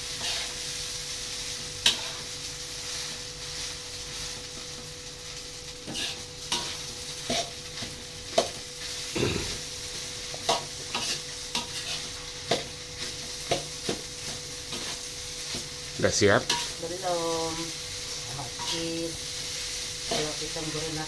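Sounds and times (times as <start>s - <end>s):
rice sizzling in a pan: 0.0s - 21.0s
spatula scraping and knocking pan: 10.3s - 15.7s.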